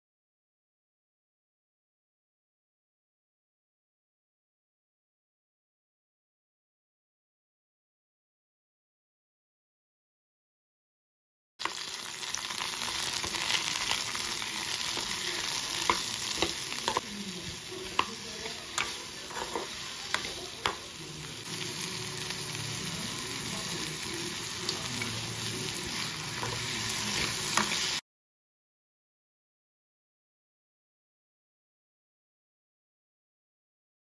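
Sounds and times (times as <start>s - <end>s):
vegetables sizzling in oil: 11.6s - 28.0s.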